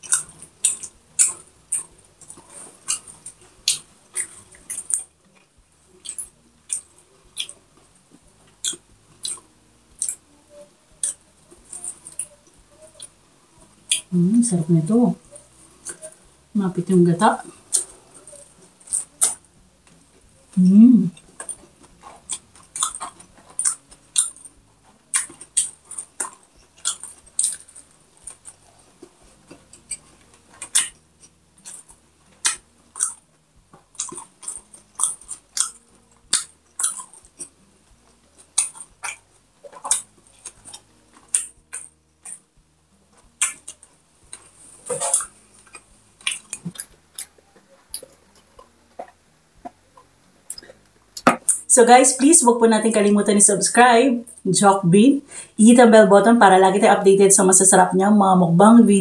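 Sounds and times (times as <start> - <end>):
wet chewing and crunching: 0.0 - 14.1, 15.2 - 16.3, 17.3 - 51.7.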